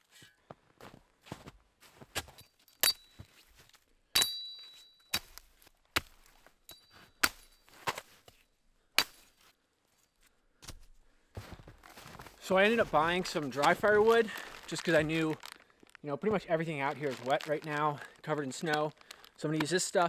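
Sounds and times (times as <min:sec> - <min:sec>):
high metallic ring: 0:04.2 - 0:05.1
axe chopping wood: 0:04.2 - 0:08.4, 0:09.0 - 0:09.4.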